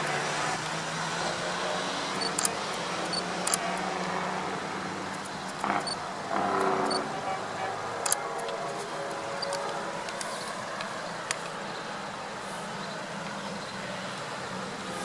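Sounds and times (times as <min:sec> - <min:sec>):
sharp clicks: 0:02.2 - 0:03.8, 0:05.1 - 0:06.0, 0:08.0 - 0:08.6.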